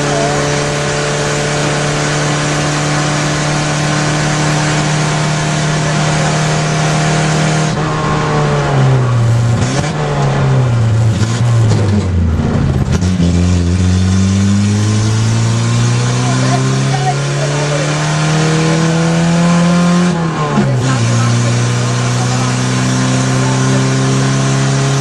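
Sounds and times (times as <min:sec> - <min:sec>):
rally car engine revving: 0:00.0 - 0:25.0.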